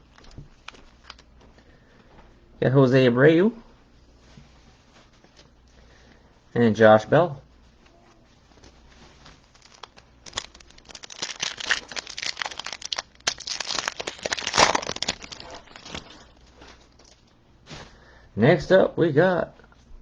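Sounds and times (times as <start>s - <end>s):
wrapper crinkling and tearing: 0.0s - 1.3s, 8.6s - 17.3s.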